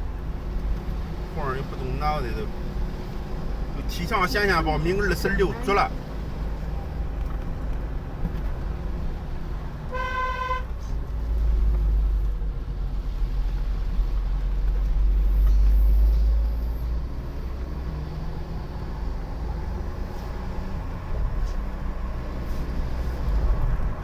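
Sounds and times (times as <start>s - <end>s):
car driving rumble: 0.0s - 24.0s
car horn toot: 9.9s - 10.7s.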